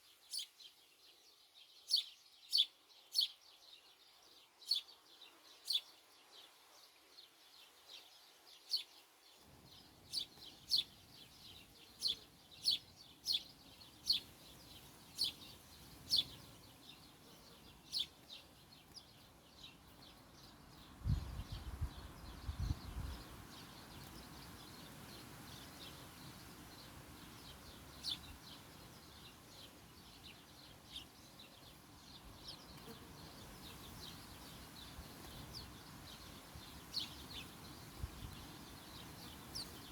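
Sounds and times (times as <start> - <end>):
small bird chirping: 0.0 - 39.9.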